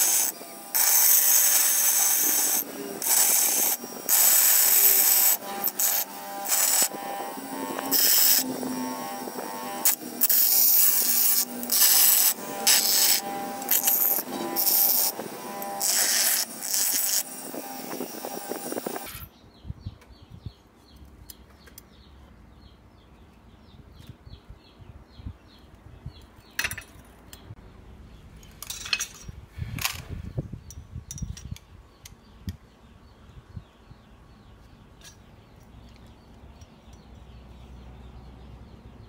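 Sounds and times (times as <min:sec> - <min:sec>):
steel parts clinking: 0:28.4 - 0:30.1.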